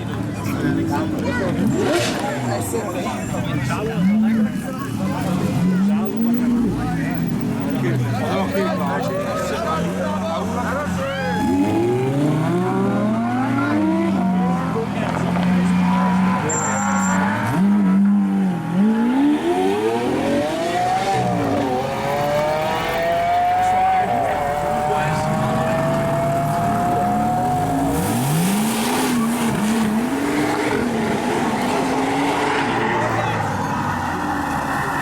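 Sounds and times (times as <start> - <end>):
car engines accelerating: 0.0 - 35.0
engine revving and throttle blips: 11.4 - 35.0.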